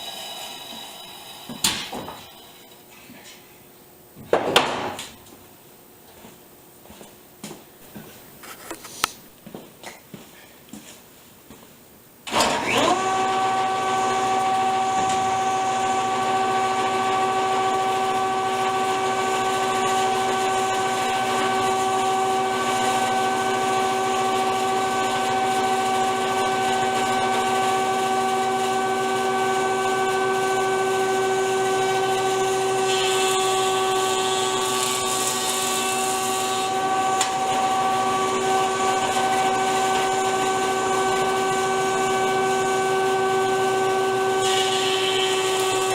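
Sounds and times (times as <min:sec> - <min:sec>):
board hissing over cutterhead: 0:00.0 - 0:02.7
jointer motor whining: 0:12.3 - 0:45.9.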